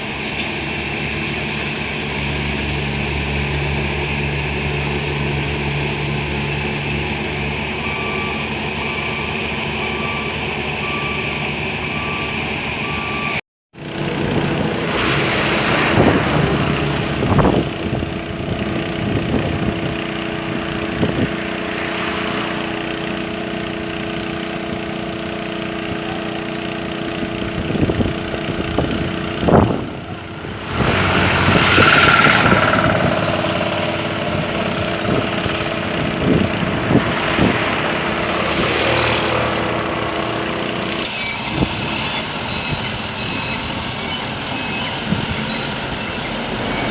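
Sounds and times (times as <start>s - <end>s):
diesel engines of heavy machinery: 0.0s - 46.9s
reversing alarm beeping: 7.2s - 13.4s, 38.1s - 46.9s.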